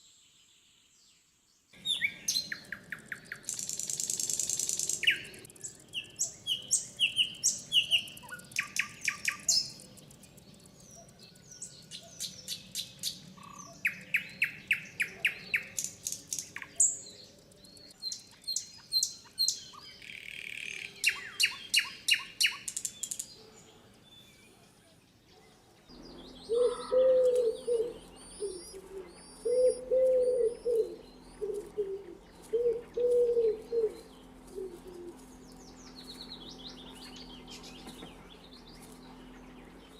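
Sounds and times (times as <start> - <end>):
birds chirping and trilling: 0.0 - 39.9
low repeated bird calls: 1.7 - 24.5, 25.4 - 39.9
steady low hum: 25.9 - 39.9.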